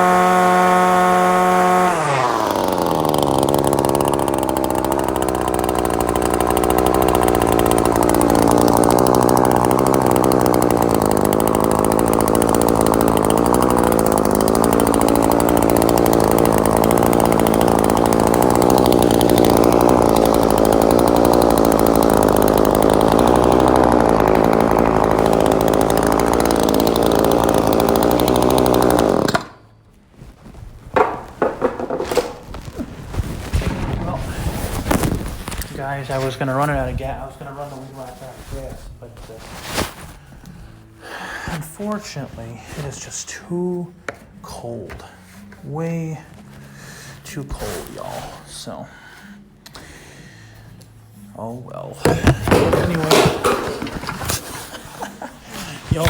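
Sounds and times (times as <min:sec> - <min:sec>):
string trimmer engine running: 0:00.0 - 0:29.8, 0:31.0 - 0:38.4, 0:52.0 - 0:56.0
knocks: 0:31.0 - 0:32.4.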